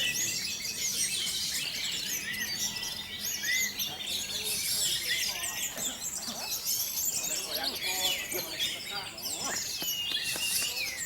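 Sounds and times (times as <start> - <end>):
caged songbirds chirping and trilling: 0.0 - 11.0.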